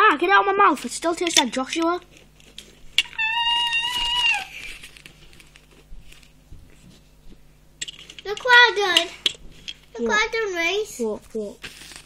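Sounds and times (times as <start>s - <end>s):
child's high-pitched squeal: 3.1s - 4.7s.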